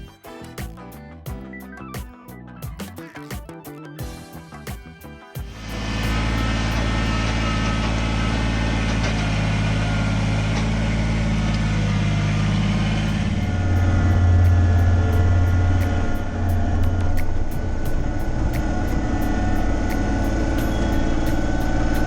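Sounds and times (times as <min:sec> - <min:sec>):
tractor diesel engine running: 0:05.5 - 0:22.0.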